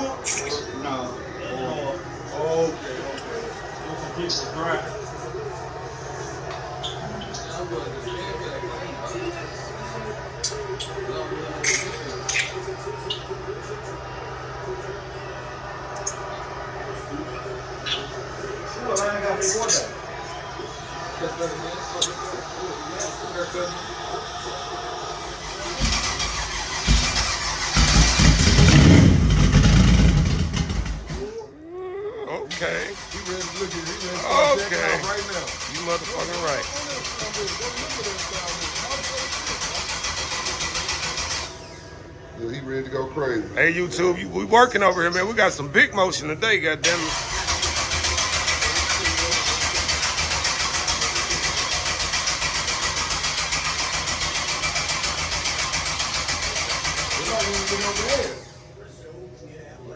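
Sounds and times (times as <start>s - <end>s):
engine cranked by starter: 25.1s - 31.4s, 32.5s - 42.1s, 46.8s - 58.8s.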